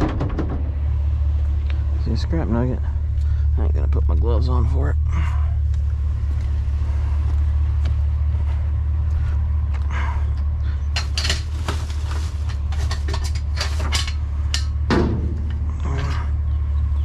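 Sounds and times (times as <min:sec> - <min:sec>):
scrap metal clattering and knocking: 0:00.0 - 0:01.2, 0:10.9 - 0:16.5
steady low rumble: 0:00.0 - 0:17.0.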